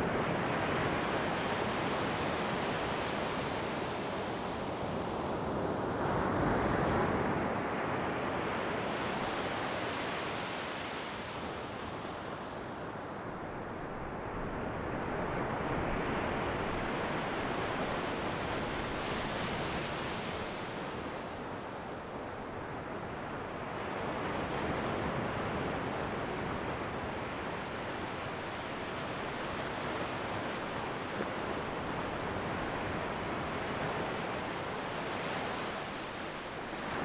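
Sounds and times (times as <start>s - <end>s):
ocean waves breaking on shore: 15.0s - 37.0s.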